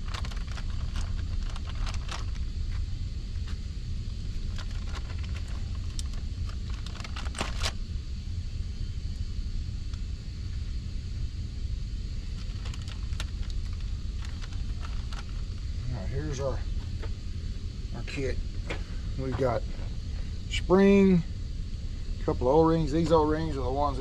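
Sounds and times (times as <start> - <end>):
small parts clicking and rustling: 0.0 - 2.5, 4.5 - 7.8, 12.4 - 15.6
steady low rumble: 0.0 - 24.0.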